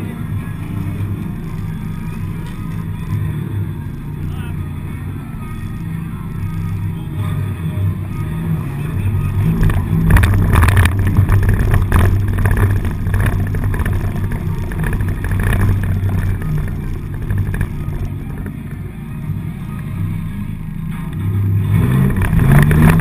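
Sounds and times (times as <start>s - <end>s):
car engine running: 0.0s - 23.0s
sharp knocks and rattles: 9.6s - 18.6s.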